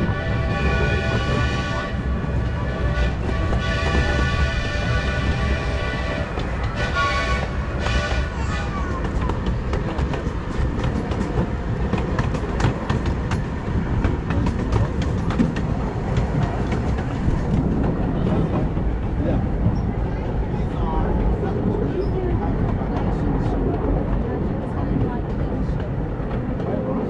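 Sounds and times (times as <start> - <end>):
train rumbling on track: 0.0 - 27.0
wheels clicking over rail joints: 7.8 - 20.1.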